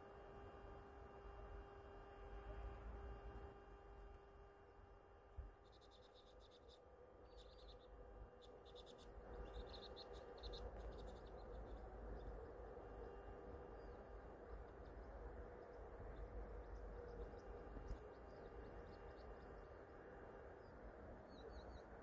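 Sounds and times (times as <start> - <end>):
faint hum: 0.0 - 22.0
low outdoor rumble: 0.0 - 22.0
small birds chirping: 5.3 - 22.0.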